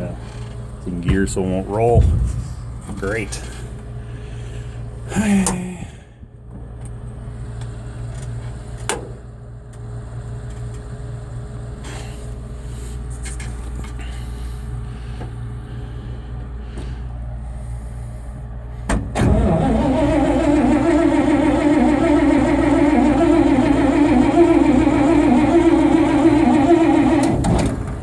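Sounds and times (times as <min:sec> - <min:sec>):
low engine drone: 0:00.0 - 0:08.1, 0:10.0 - 0:28.0
clunk: 0:01.9 - 0:03.6
starter motor cranking engine: 0:19.2 - 0:28.0.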